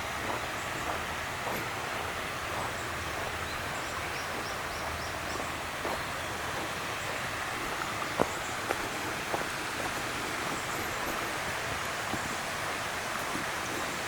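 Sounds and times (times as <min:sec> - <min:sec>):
small bird singing: 0:02.6 - 0:06.4.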